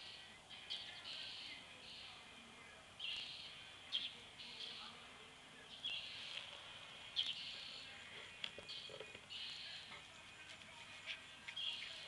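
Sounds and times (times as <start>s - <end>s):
bird chirps: 0.0s - 5.0s, 5.6s - 12.0s.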